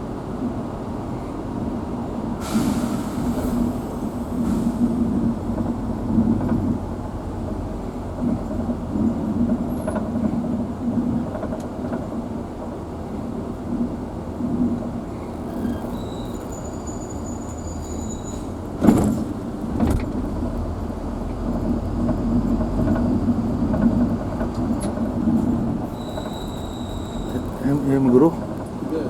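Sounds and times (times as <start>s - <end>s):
vehicle engine and road rumble: 0.0s - 29.0s
brief hissing rush: 2.4s - 5.0s.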